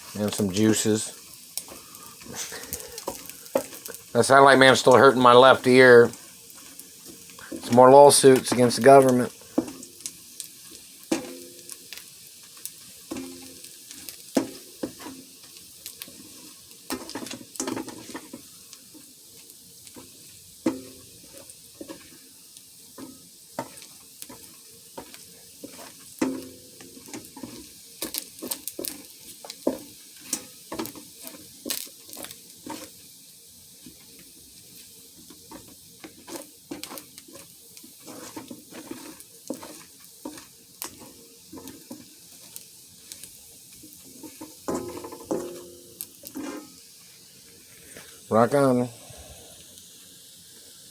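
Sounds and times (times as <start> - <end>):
crab meat sizzling in butter: 0.0 - 50.9
utensil scraping pan: 23.0 - 33.0, 35.4 - 43.4, 44.0 - 46.8.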